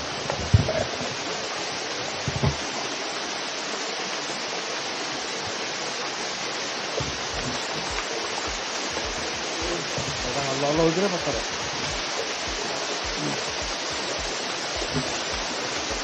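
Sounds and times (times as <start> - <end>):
rushing water hiss: 0.0 - 16.0
low thumps: 6.9 - 16.0.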